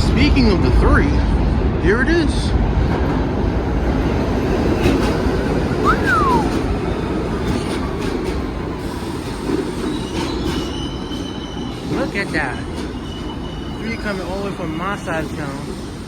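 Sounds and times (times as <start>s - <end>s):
train wheels rumbling on rail: 0.0s - 16.0s
falling squeal: 9.8s - 12.3s, 12.9s - 14.5s.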